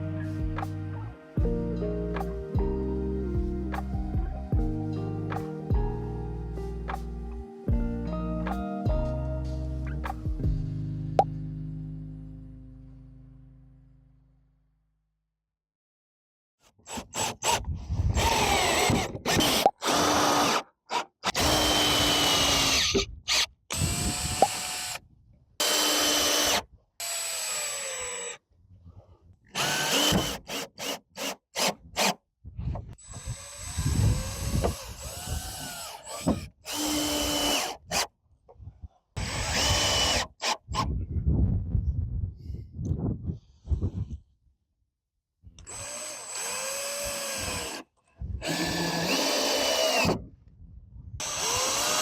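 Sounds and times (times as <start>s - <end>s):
power drill bursts: 18.2s - 25.0s, 25.6s - 28.4s, 29.6s - 32.1s, 33.0s - 38.1s, 39.2s - 40.6s, 45.6s - 47.8s, 48.4s - 50.2s, 51.2s - 52.0s.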